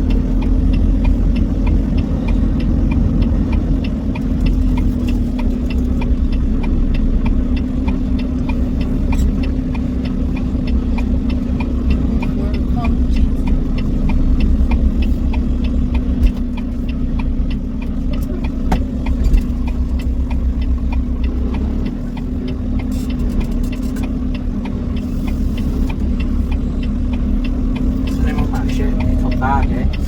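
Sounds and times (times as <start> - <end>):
faint regular ticking: 0.0 - 30.0
truck engine droning: 0.0 - 30.0.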